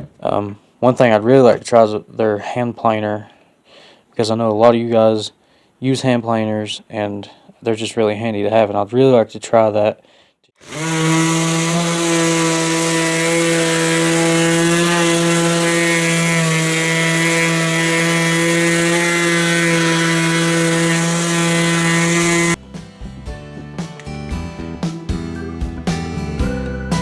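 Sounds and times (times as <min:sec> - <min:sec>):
electric sander running: 0:10.6 - 0:22.6.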